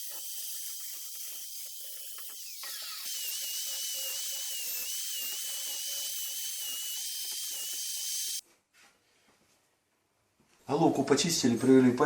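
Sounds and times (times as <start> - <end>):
rotary tool whining: 0.0 - 8.4.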